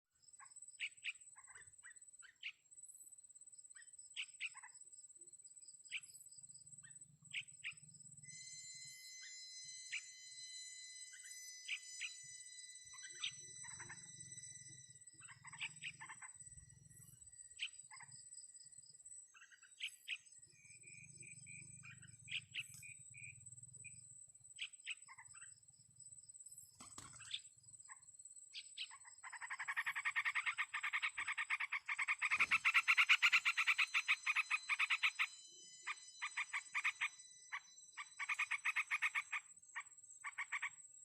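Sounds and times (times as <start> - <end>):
sharp high bird chirps: 3.7 - 4.8, 5.8 - 41.0
thin high-pitched whine: 5.8 - 28.0, 28.6 - 40.0.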